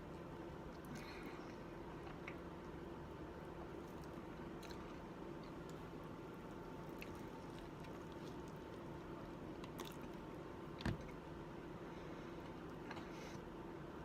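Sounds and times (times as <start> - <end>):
steady background hum: 0.0 - 14.0
person chewing: 3.8 - 10.3.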